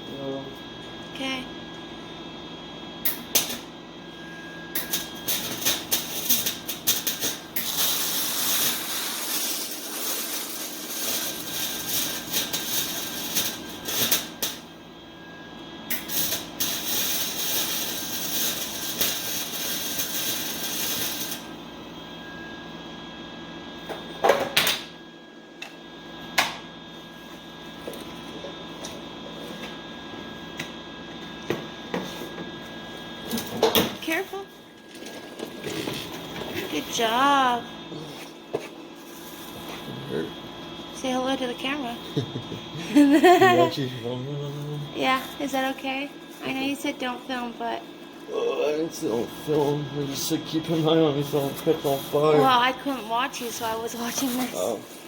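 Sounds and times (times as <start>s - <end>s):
steady hum: 0.0s - 55.0s
welding arc crackling and sizzling: 3.0s - 3.7s, 4.8s - 14.8s, 15.9s - 21.6s, 33.3s - 37.7s, 44.6s - 47.9s, 48.9s - 55.0s.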